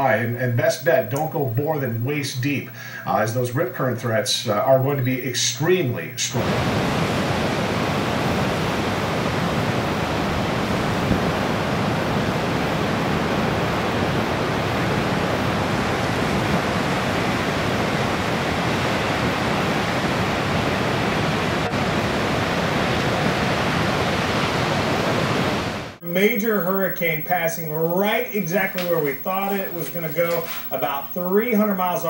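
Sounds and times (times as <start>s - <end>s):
heavy ocean surf roaring: 4.5s - 32.0s.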